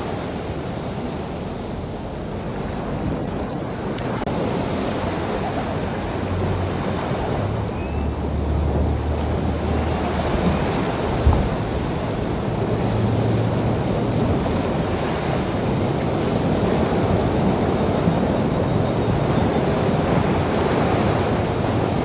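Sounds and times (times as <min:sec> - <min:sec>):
surf washing in: 0:00.0 - 0:22.0
low thump: 0:11.2 - 0:11.7.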